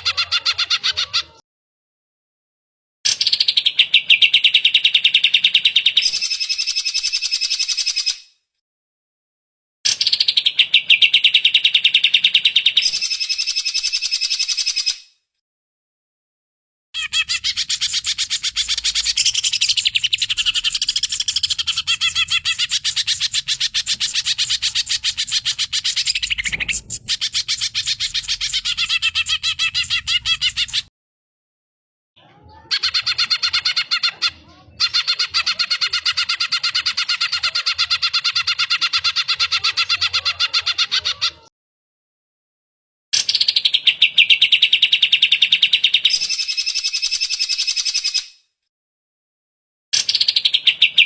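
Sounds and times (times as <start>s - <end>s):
bird singing chattering notes: 17.0s - 30.9s.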